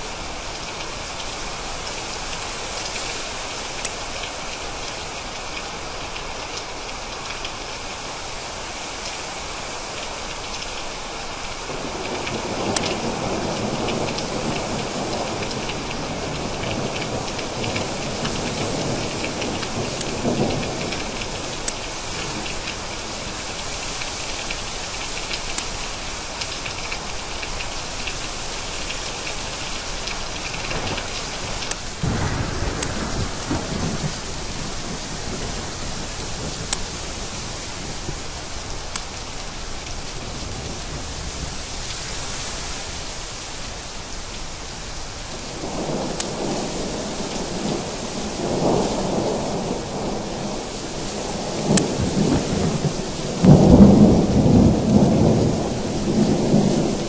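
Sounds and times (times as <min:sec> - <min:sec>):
heavy rain: 0:00.0 - 0:57.0
close raindrop ticks: 0:00.5 - 0:08.0, 0:09.0 - 0:40.7, 0:45.5 - 0:47.8, 0:50.4 - 0:57.0
thunder rumbling: 0:29.4 - 0:38.7, 0:45.3 - 0:57.0.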